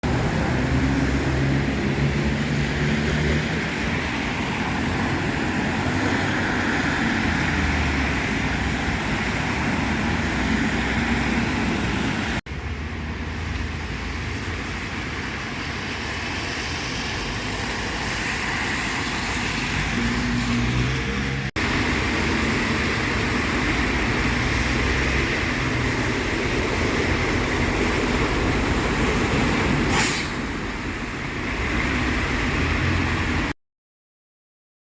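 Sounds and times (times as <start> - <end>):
engine rumble of passing vehicles: 0.0 - 33.6
tyre hiss on wet road: 21.6 - 32.4.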